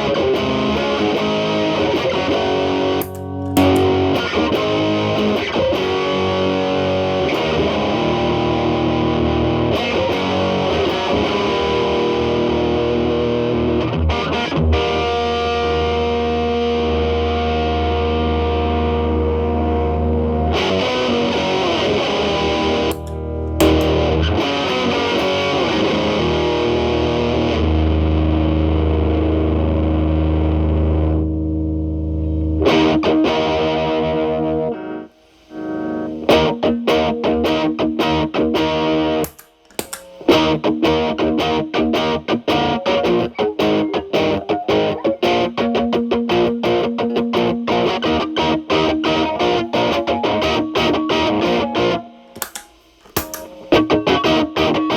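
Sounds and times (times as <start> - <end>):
fast rhythmic guitar picking: 0.0 - 28.0, 35.9 - 54.9
distorted electric guitar chords: 0.0 - 38.2.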